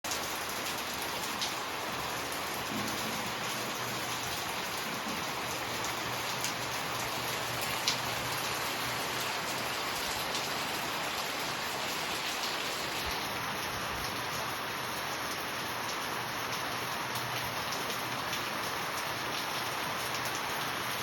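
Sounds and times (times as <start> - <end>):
rain pattering on surfaces: 0.1 - 21.0.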